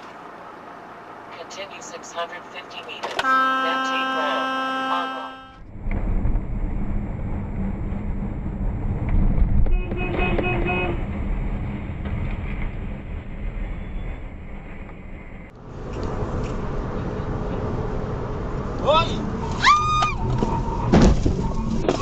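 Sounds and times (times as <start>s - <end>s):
moving car road noise: 0.0s - 22.0s
car horn: 3.0s - 5.6s, 9.7s - 11.1s.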